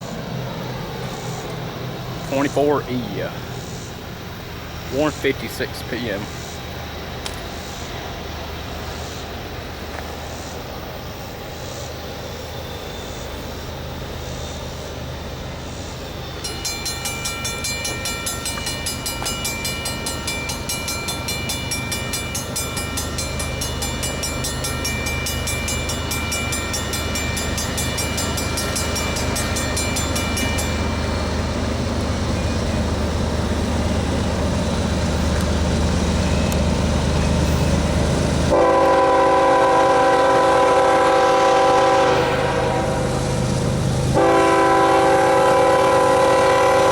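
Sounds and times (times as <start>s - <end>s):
diesel locomotive engine rumble: 0.0s - 46.9s
rapidly pulsing ringing: 16.0s - 33.2s
locomotive horn: 38.5s - 43.4s, 44.1s - 46.9s.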